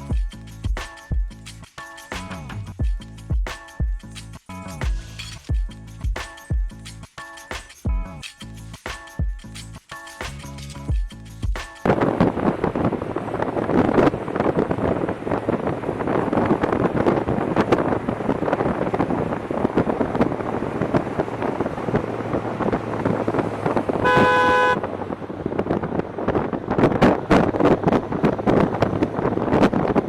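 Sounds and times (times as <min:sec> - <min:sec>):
motorcycle road and wind noise: 0:11.8 - 0:30.0
vehicle horn honking: 0:24.0 - 0:24.9.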